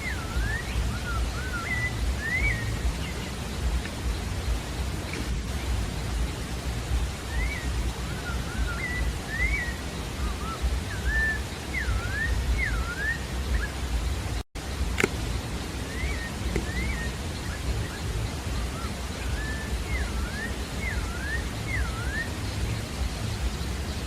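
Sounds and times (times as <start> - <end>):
bird whistling notes: 0.0 - 4.5, 7.0 - 14.0, 15.0 - 24.0
steady low rumble: 0.0 - 24.0
sharp click: 14.9 - 15.2.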